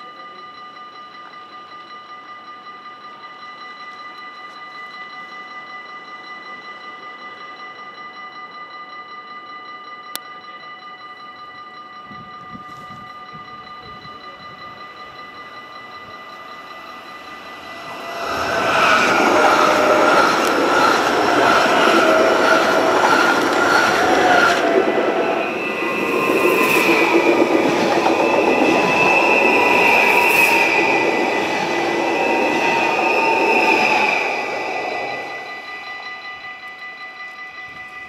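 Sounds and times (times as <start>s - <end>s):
crossing warning bells ringing: 0.0s - 38.0s
electric train passing: 0.0s - 38.0s
high whines of train: 0.0s - 38.0s
train wheel squeal: 10.6s - 38.0s.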